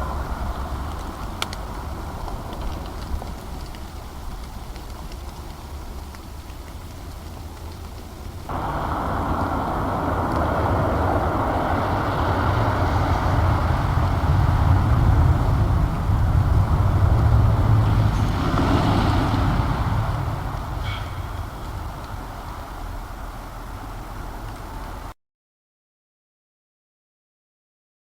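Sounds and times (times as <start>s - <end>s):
vehicle passing on gravel road: 0.0s - 25.1s.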